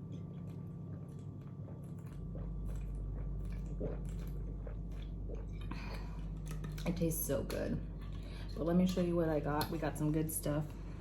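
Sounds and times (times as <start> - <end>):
low steady hum: 0.0 - 11.0
person sipping and swallowing: 1.6 - 6.5.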